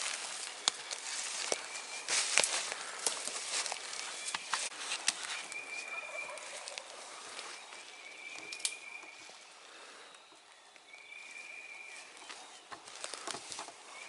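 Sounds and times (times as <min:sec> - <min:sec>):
faint rustling: 0:11.2 - 0:14.0.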